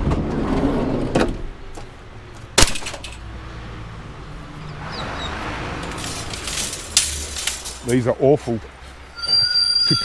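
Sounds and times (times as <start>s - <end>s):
engine humming: 0.0s - 10.0s
loud metal clang: 2.6s - 3.2s, 5.8s - 8.0s.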